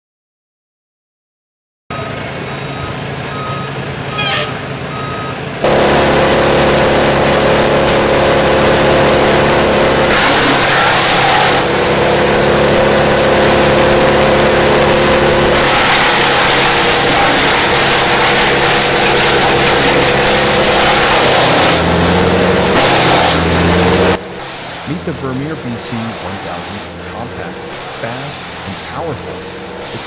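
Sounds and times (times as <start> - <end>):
reversing alarm beeping: 1.9 - 9.6
heavy machine engine running: 1.9 - 30.0
dense rushing noise: 5.6 - 30.0.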